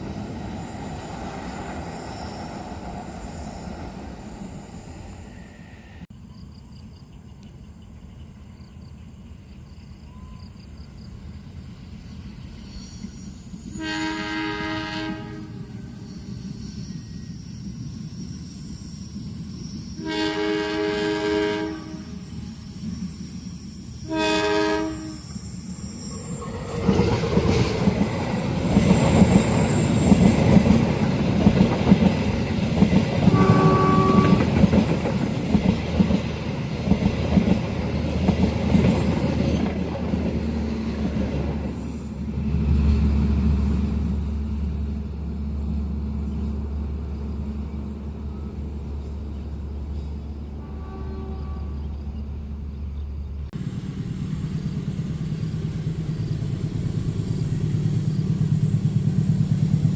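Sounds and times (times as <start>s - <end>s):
train passing with wheel clatter: 0.0s - 59.9s
train horn blasts: 13.7s - 15.8s, 20.0s - 22.3s, 24.0s - 25.4s, 33.2s - 34.7s, 50.5s - 52.0s.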